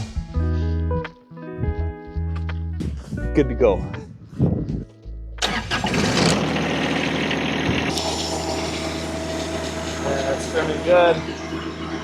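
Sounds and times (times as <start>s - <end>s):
tractor engine hum: 5.4s - 12.0s
snowblower whirring rush: 5.8s - 10.1s.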